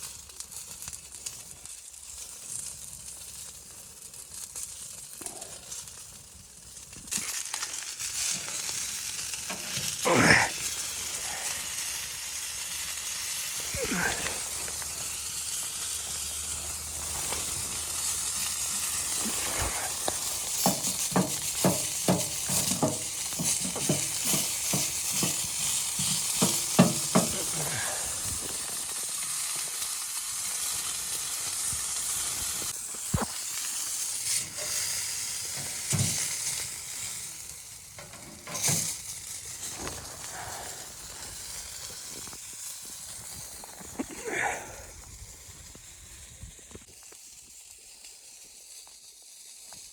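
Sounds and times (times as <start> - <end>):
steady hiss: 0.0 - 49.9.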